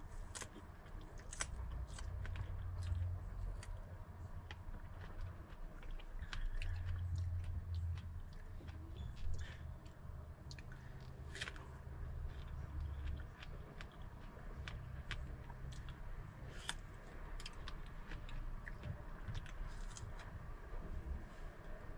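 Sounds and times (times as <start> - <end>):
biting and chewing fruit: 0.0 - 21.8
low hum: 0.0 - 21.9.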